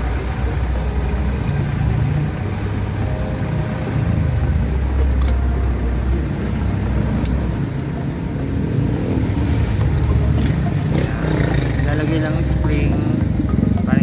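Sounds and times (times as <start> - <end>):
vehicle engine rumbling: 0.0 - 14.0
sharp clicks: 5.2 - 5.5.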